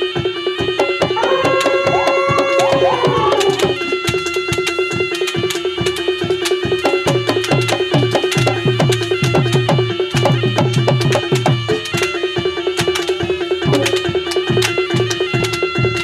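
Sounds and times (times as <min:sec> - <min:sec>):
drums struck rapidly: 0:00.8 - 0:12.1.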